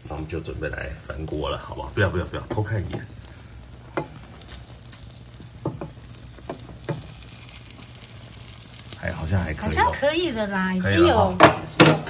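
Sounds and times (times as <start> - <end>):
egg sizzling in a pan: 0.0 - 12.0
spatula tapping: 5.6 - 7.1.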